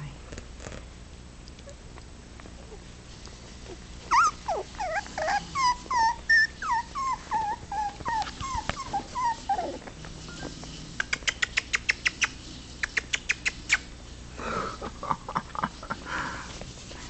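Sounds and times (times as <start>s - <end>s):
puppies whimpering and yelping: 3.6s - 12.2s.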